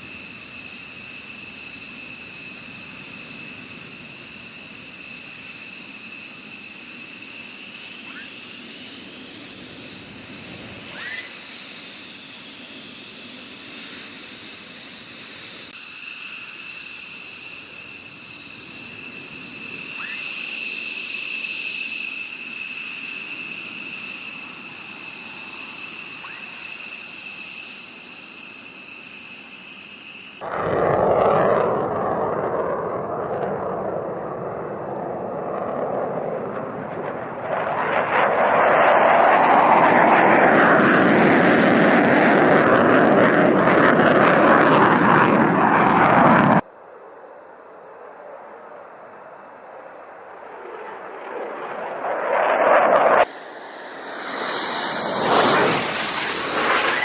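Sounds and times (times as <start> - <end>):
jet turbine whine: 0.0 - 57.0
loud rushing jet noise: 30.4 - 46.7, 50.3 - 57.0.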